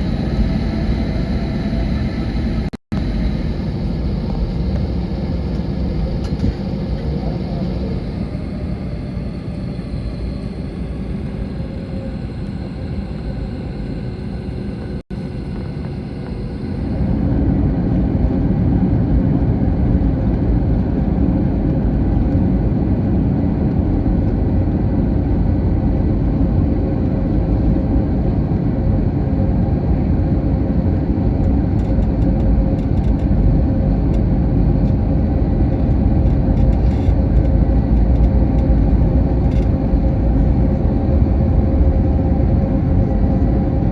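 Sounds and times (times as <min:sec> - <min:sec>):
faint steady hum: 0:00.0 - 0:17.4
aircraft cabin engine rumble: 0:00.0 - 0:43.9.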